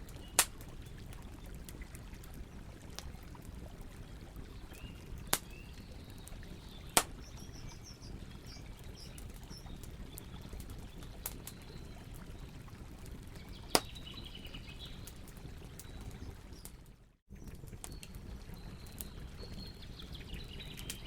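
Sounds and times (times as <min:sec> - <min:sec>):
campfire pops and snaps: 0:00.0 - 0:03.4, 0:04.8 - 0:07.9, 0:08.5 - 0:11.7, 0:13.6 - 0:14.2
faint birds chirping: 0:00.0 - 0:16.8.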